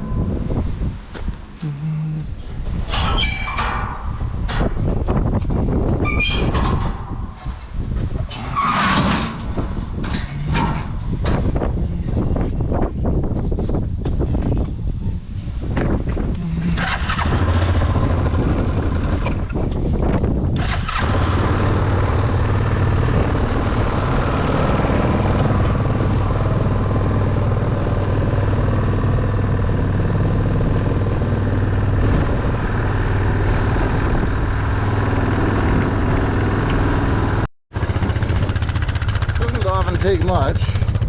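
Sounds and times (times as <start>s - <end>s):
quad bike engine under load: 16.6s - 41.0s.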